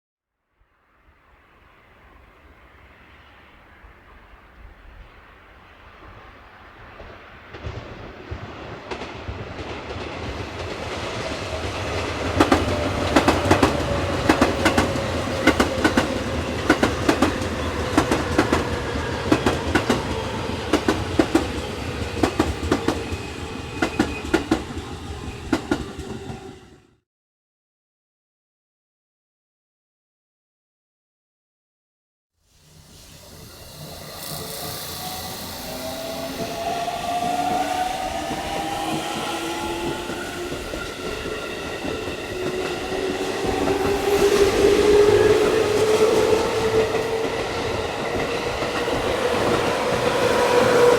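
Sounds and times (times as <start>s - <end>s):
train motor whine: 32.6s - 50.9s.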